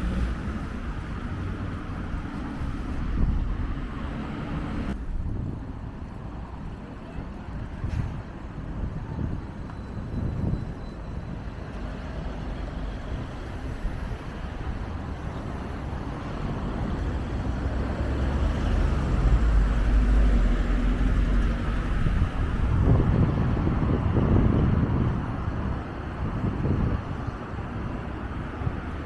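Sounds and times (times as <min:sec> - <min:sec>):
wind buffeting microphone: 0:00.0 - 0:29.0
vehicle passing: 0:15.0 - 0:25.0.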